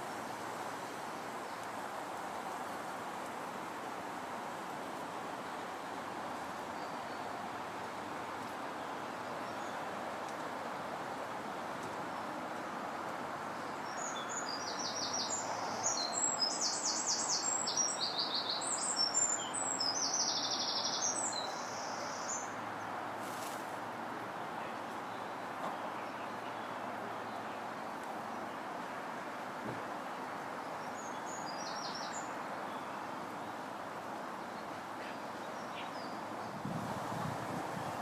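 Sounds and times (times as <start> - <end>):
wind noise: 36.4 - 38.0.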